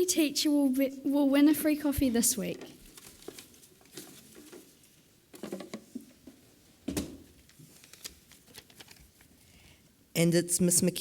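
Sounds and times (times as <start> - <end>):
faint rustles and clicks: 2.4 - 6.5, 7.4 - 9.5.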